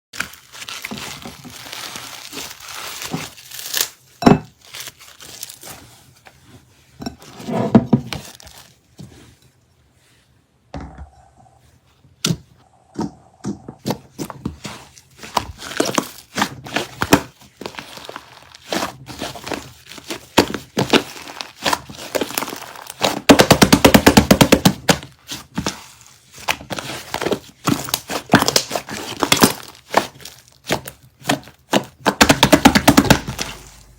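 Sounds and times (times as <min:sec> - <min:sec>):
slime squished by hand: 0:13.9 - 0:33.9.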